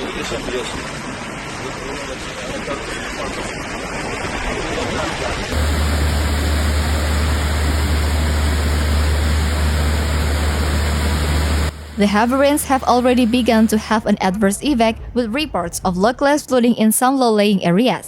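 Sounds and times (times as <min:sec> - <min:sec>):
heavy rain hiss: 0:00.0 - 0:14.0
steady low rumble: 0:03.1 - 0:16.8.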